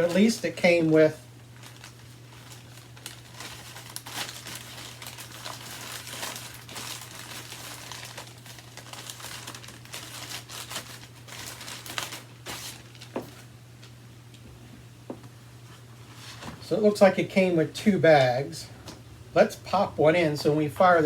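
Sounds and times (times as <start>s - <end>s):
bags crinkling and rustling: 0.0s - 13.9s.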